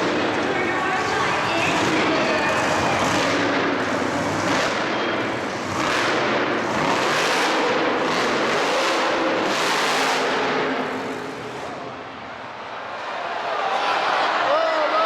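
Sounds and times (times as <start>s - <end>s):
engine revving loudly: 0.0s - 11.7s
arena noise: 0.0s - 15.0s.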